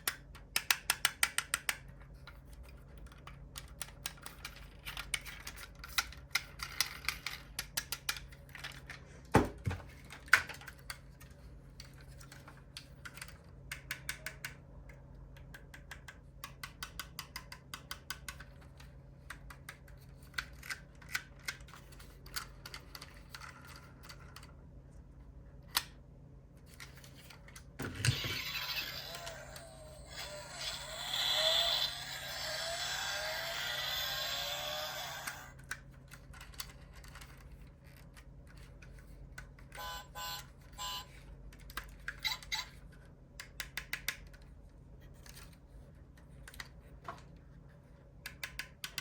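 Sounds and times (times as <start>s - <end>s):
small metallic and plastic clicks: 0.0s - 9.0s, 10.0s - 24.6s, 41.5s - 46.8s, 48.2s - 49.0s.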